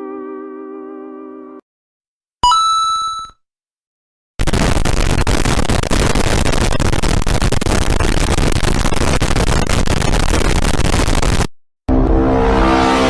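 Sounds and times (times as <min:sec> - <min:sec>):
harsh distorted crackling noise: 0:04.4 - 0:11.5.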